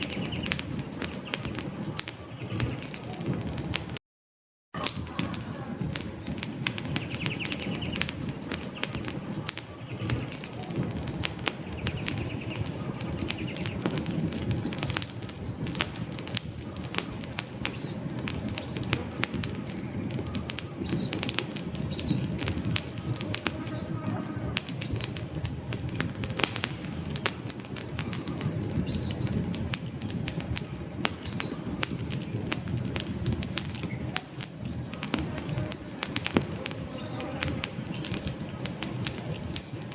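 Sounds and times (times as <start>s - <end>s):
campfire flames rumbling: 0.0s - 4.0s, 4.8s - 39.9s
logs crackling and popping: 0.0s - 4.0s, 4.8s - 39.9s.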